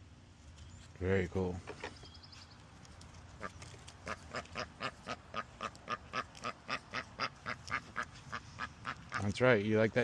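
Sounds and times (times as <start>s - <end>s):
duck quacking: 3.4s - 9.3s.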